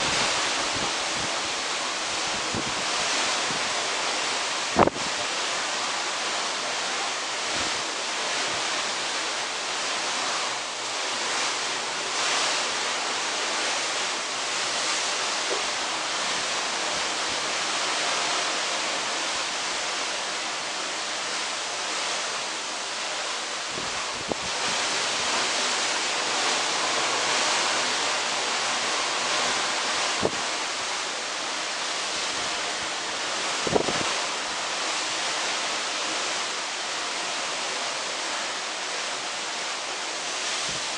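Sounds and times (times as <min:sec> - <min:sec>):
wind buffeting microphone: 0:00.0 - 0:03.8, 0:04.6 - 0:05.2, 0:23.6 - 0:25.8, 0:32.0 - 0:34.3
sea rushing: 0:00.0 - 0:40.9.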